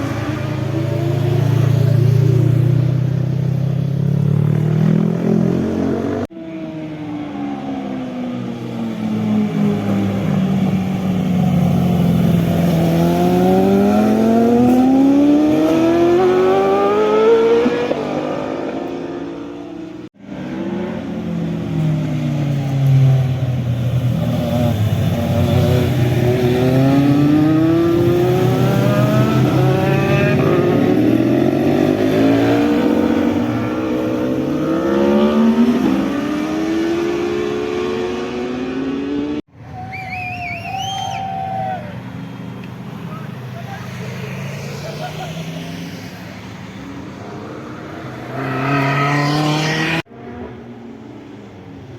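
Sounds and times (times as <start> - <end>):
motorcycle engines accelerating: 0.0 - 39.5, 40.5 - 50.6.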